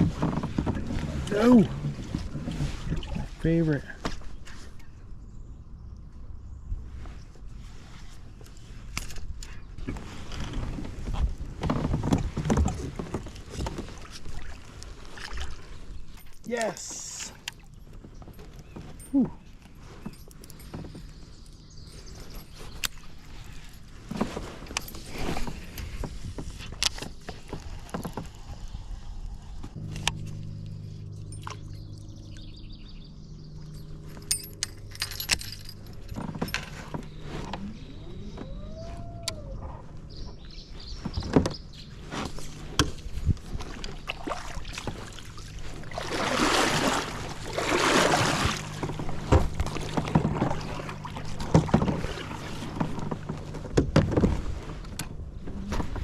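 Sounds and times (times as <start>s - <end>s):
water splashing: 13.3s - 15.9s, 43.0s - 53.5s
steady low hum: 27.7s - 40.8s, 41.8s - 56.0s
fishing gear clicking and knocking: 33.7s - 37.6s.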